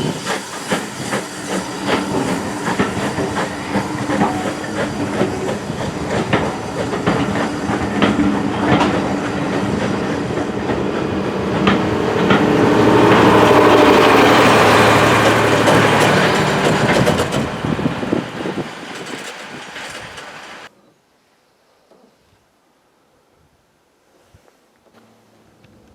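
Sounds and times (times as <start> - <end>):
train wheels clicking over rail joints: 0.0 - 20.7.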